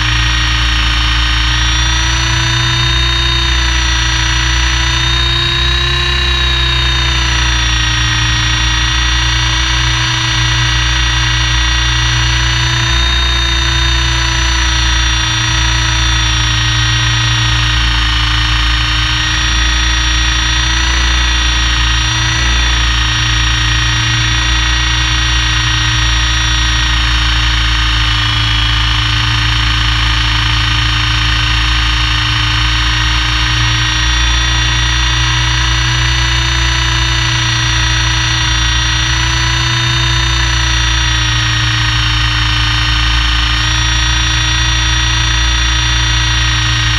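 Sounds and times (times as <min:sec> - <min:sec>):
helicopter rotor rumble: 0:00.0 - 0:46.9
helicopter turbine whine: 0:00.0 - 0:46.9.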